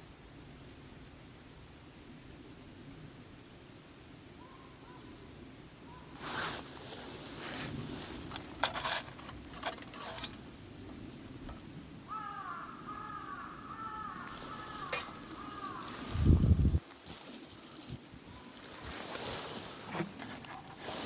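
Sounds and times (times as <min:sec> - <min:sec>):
bird calling: 0:04.4 - 0:05.1, 0:12.1 - 0:16.8
sharp clicks and rustles: 0:07.4 - 0:11.7, 0:14.4 - 0:21.0.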